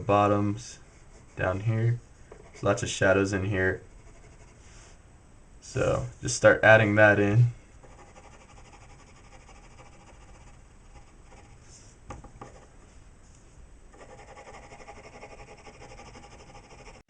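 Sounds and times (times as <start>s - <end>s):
pencil scratching on paper: 4.0s - 4.6s, 7.8s - 11.6s, 14.0s - 17.0s.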